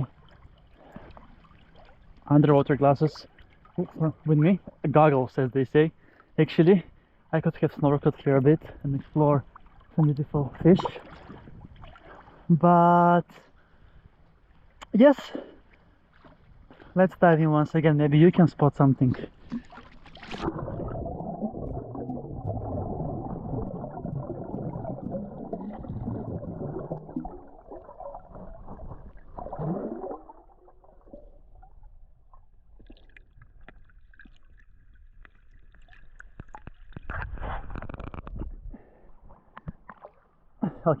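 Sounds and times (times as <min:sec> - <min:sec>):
water splashing: 0:08.7 - 0:12.6, 0:18.6 - 0:38.0
muffled underwater gurgling: 0:20.4 - 0:31.3.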